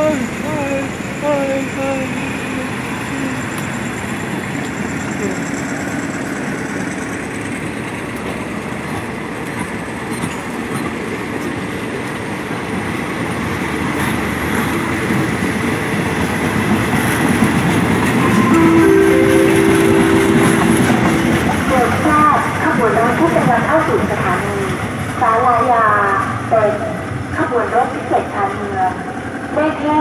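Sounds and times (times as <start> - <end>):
train wheels clattering and rumbling: 2.8 - 18.2.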